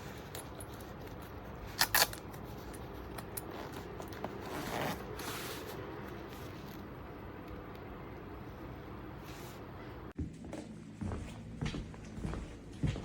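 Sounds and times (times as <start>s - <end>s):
zipper rasp: 3.4s - 5.8s.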